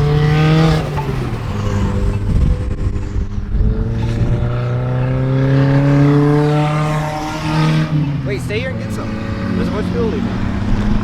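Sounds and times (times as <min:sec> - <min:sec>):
car engines accelerating: 0:00.0 - 0:11.0
rough low rumble: 0:01.1 - 0:05.0.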